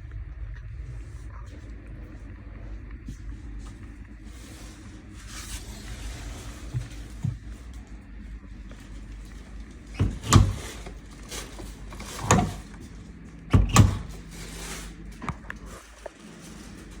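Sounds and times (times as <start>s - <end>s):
low steady hum: 0.0s - 17.0s
washing machine door clunks: 9.9s - 11.0s, 11.8s - 12.7s, 13.5s - 14.3s.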